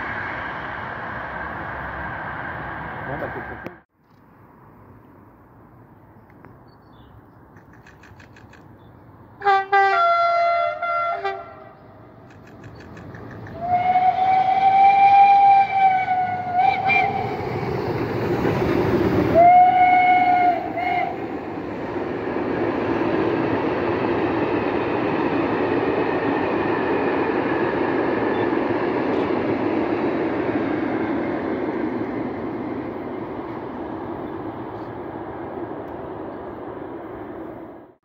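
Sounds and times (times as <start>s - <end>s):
steam train rumbling past: 0.0s - 3.8s, 9.3s - 38.0s
locomotive whistle blasts: 13.6s - 17.4s, 19.3s - 21.2s.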